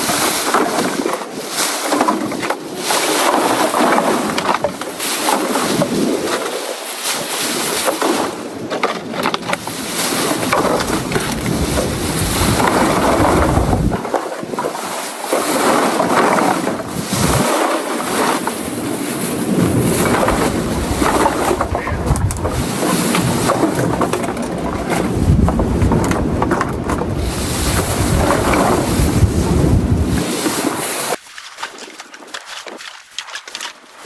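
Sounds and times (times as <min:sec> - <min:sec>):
wind buffeting microphone: 0:09.4 - 0:14.8, 0:15.6 - 0:31.2
surf rushing: 0:09.5 - 0:31.2.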